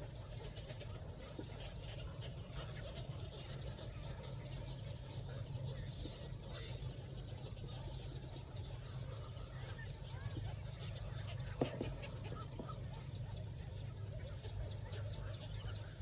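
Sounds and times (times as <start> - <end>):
crickets trilling: 0.0 - 16.0
faint chirps: 0.0 - 16.0.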